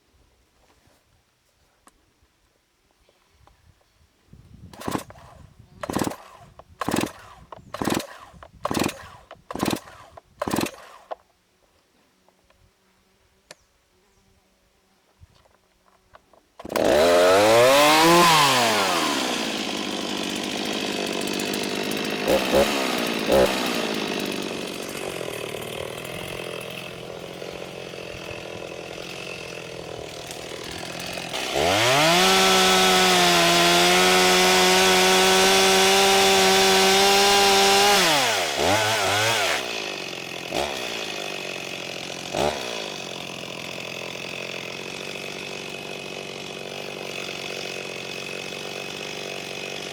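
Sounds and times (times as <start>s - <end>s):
chainsaw revving and idling: 4.7s - 11.2s, 16.6s - 49.9s.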